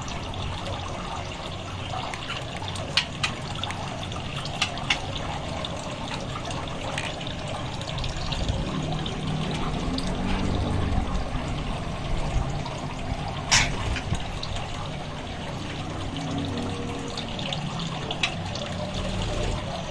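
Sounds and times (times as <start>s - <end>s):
running water: 0.0s - 19.9s.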